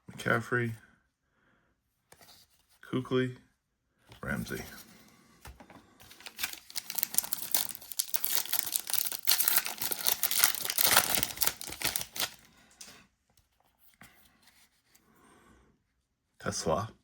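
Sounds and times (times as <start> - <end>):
foil wrapper tearing and crinkling: 6.0 - 12.5.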